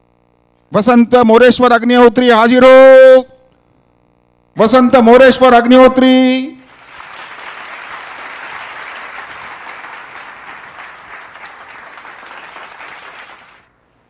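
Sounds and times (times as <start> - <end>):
audience applauding: 6.7 - 13.7.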